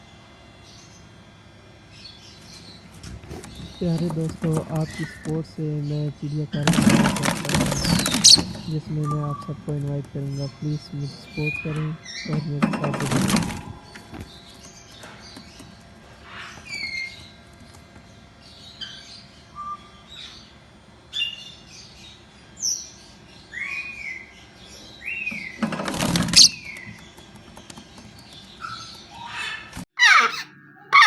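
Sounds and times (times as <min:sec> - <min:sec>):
caged birds chirping and whistling: 0:06.6 - 0:09.5, 0:21.1 - 0:31.0.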